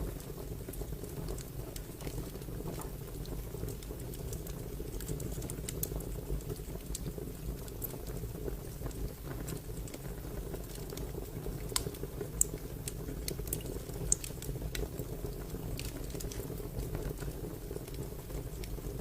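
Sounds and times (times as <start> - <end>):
fire crackling with pops: 0.0 - 19.0.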